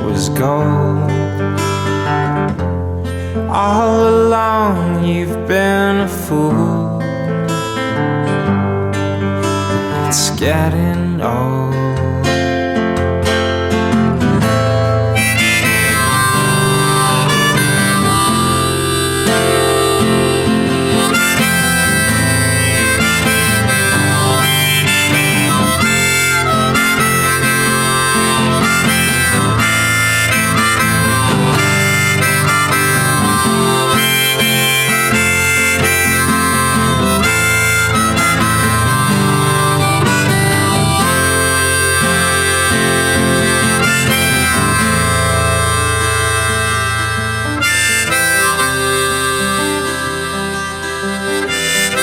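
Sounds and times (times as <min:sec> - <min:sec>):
harmonica over guitar: 0:00.0 - 0:52.0.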